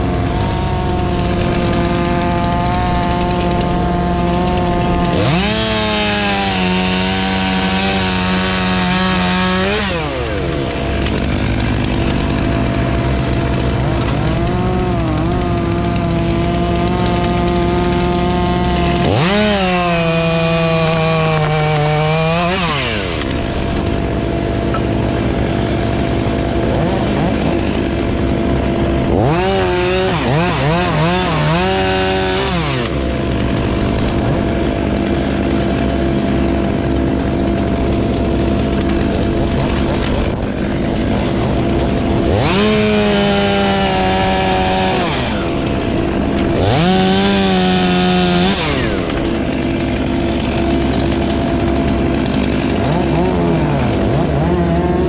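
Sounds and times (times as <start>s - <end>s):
chainsaw engine revving: 0.0s - 55.0s.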